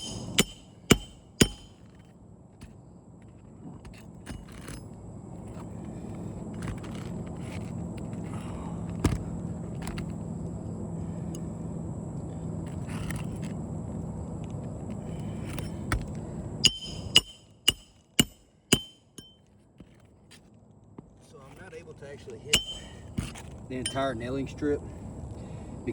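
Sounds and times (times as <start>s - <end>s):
hammer striking metal: 0.0s - 1.8s, 16.6s - 19.4s, 22.5s - 23.1s
steady low hum: 0.0s - 19.5s, 21.3s - 25.9s.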